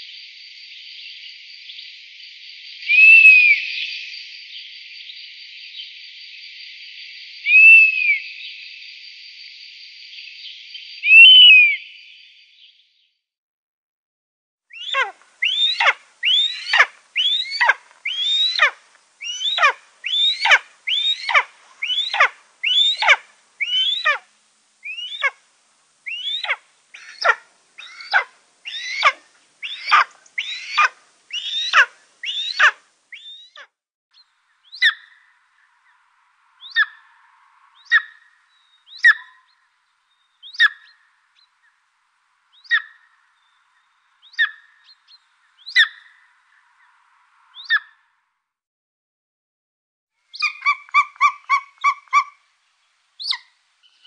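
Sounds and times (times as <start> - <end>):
eagle barking calls: 14.7 - 25.4, 26.0 - 33.6, 39.0 - 39.4, 50.3 - 52.4
eagle short high calls: 14.7 - 25.4, 26.0 - 33.6.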